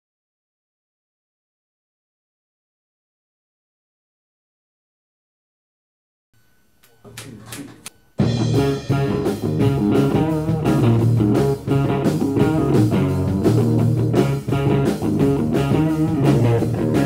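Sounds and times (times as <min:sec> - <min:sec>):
rock band playing: 0:07.1 - 0:17.0.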